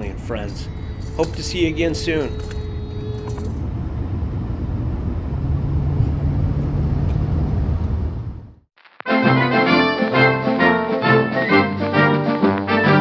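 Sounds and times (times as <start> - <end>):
vehicle rumble from inside: 0.0 - 8.6.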